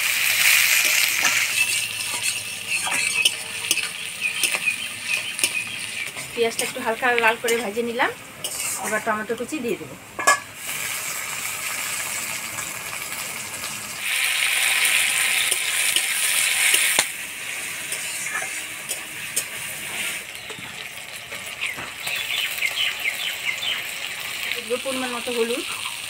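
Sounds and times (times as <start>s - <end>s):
tomatoes and onions sizzling in oil: 0.0s - 26.0s
metal spatula clicking on a pan: 2.1s - 6.7s.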